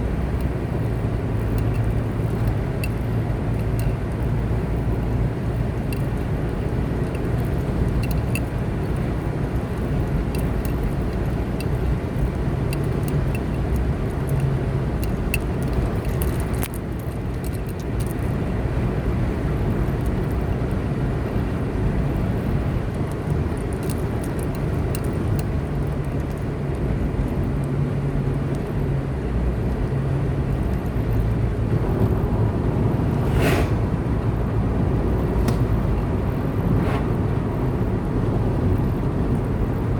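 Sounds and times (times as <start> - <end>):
car engine hum: 0.0 - 39.9
brief rush: 33.0 - 34.1.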